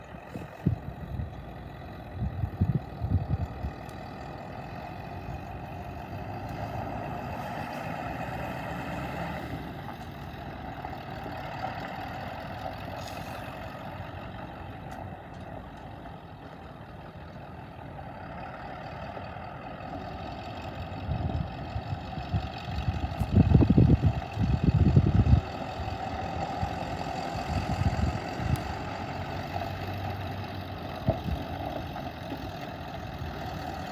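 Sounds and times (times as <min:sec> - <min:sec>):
truck engine idling: 0:00.0 - 0:33.9.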